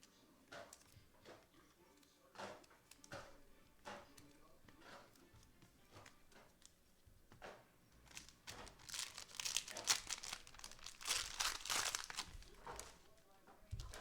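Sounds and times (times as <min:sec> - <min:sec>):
plastic wrappers crinkling and tearing: 0:08.0 - 0:14.0.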